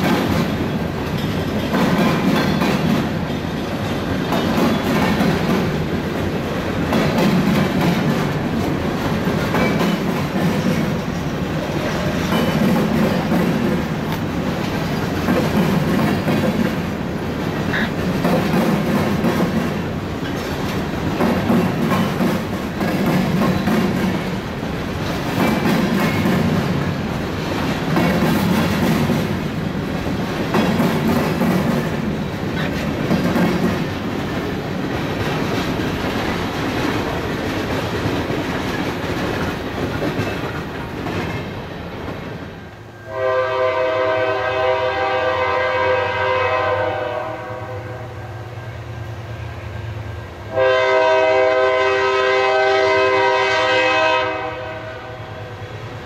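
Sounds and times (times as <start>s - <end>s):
train wheels clicking over rail joints: 0.0s - 42.7s
locomotive air horn blasts: 43.0s - 48.2s, 50.5s - 55.6s.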